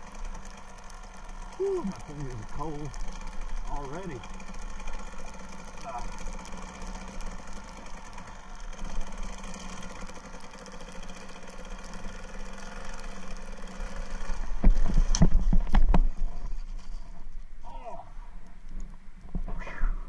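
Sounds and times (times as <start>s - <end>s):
muffled motorcycle engine running: 0.0s - 17.9s.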